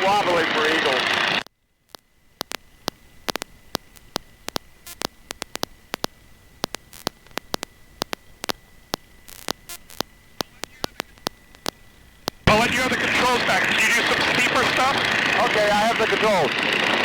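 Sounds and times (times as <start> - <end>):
static crackling clicks: 0.0 - 17.0
thin steady high whine: 0.0 - 17.0
low hiss: 1.7 - 15.3.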